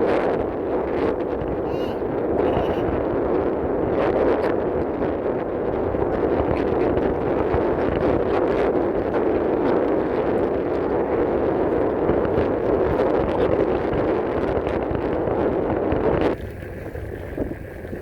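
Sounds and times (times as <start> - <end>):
wind rushing on microphone: 0.0 - 18.0.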